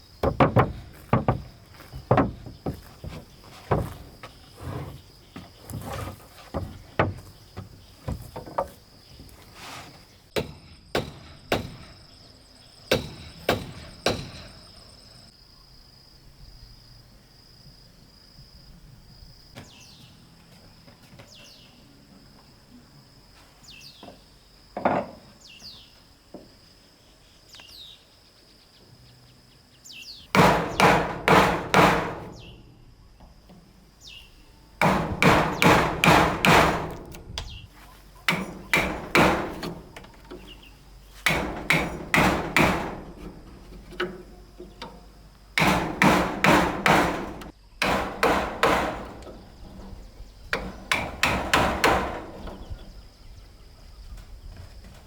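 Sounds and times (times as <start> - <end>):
insects trilling: 0.0 - 55.0
hammer striking wood: 0.2 - 4.1, 6.5 - 8.7, 10.4 - 11.9, 12.9 - 14.5, 30.3 - 32.5, 34.8 - 37.1, 38.3 - 39.9, 41.2 - 43.2, 45.6 - 49.3, 50.5 - 52.5.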